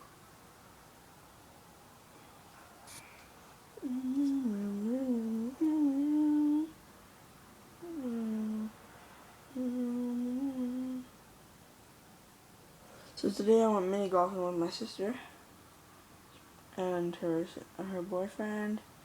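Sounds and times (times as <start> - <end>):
person humming: 3.8 - 6.8, 7.8 - 8.8, 9.5 - 11.1.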